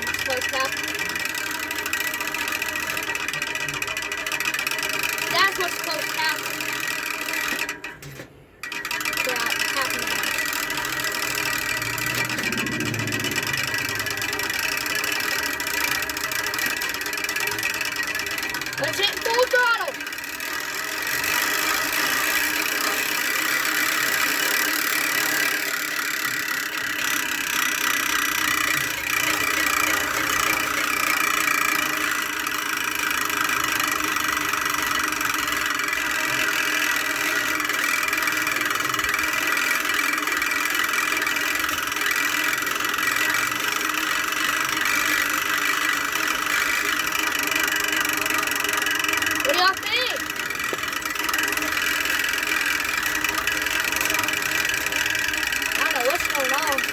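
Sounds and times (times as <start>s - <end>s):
mechanical whir with rattle: 0.0s - 56.9s.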